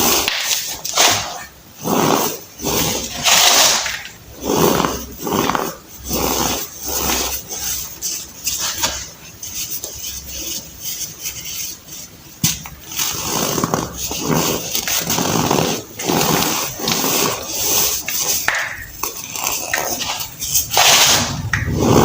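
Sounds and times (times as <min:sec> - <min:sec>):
baking soda crunching: 0:12.7 - 0:22.0.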